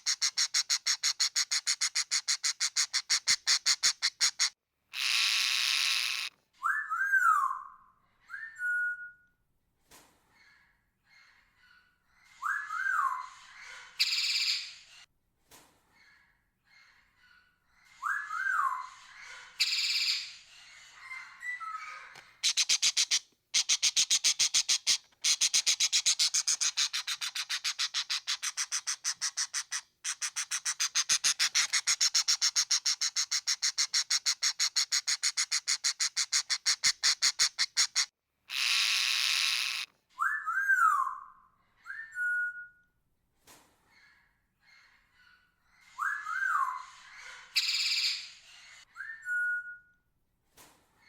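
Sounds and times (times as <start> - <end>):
parrot chattering: 0.0 - 6.3, 22.4 - 39.9
parrot screech: 4.4 - 6.3, 36.5 - 39.9.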